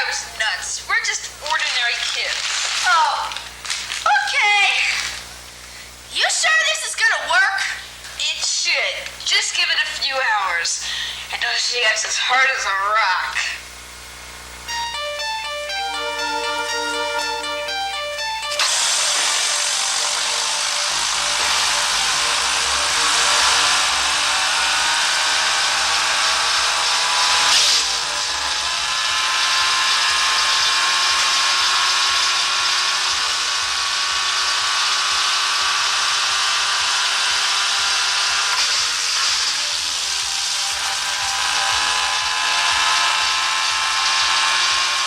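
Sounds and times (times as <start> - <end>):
woodchipper grinding: 1.4 - 5.8, 18.6 - 45.0
electronic music notes: 14.6 - 28.9.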